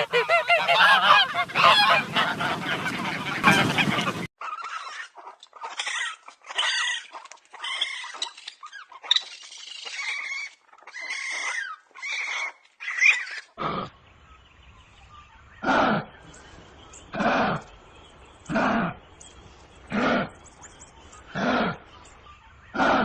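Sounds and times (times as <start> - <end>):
animal high-pitched calls: 4.4 - 13.6.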